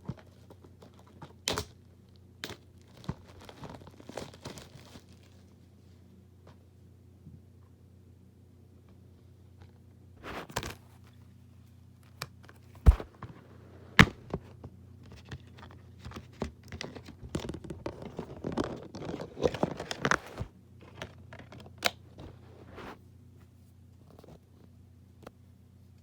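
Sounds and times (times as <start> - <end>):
packaging rustling: 2.8 - 5.5, 15.4 - 21.8.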